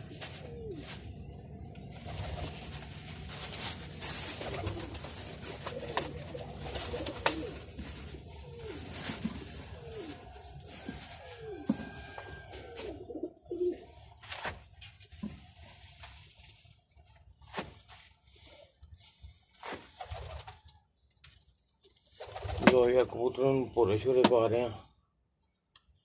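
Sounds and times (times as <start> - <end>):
pigeons cooing: 0.0 - 14.2
rustling hiss: 1.9 - 11.6.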